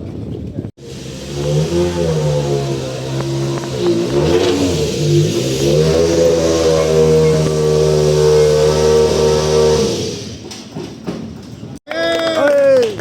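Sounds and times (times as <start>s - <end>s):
rally car engine at high revs: 0.8s - 10.5s.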